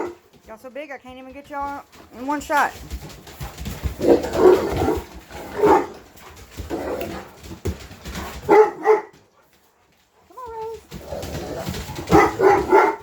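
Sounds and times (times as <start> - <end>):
dogs barking deeply: 8.4 - 9.1, 11.4 - 13.0.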